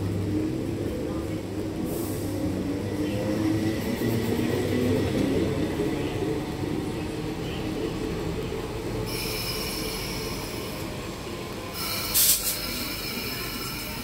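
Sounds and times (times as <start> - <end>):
electric train accelerating: 0.0 - 14.0
high squeal: 9.1 - 10.8, 11.8 - 14.0.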